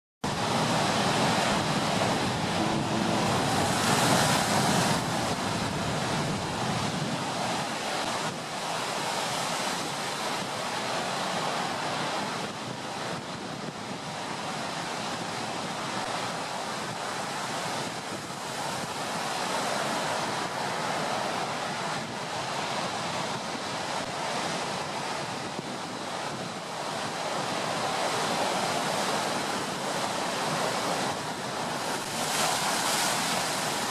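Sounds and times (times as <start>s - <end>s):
wind blowing: 0.2s - 8.6s
waves breaking: 0.3s - 33.9s.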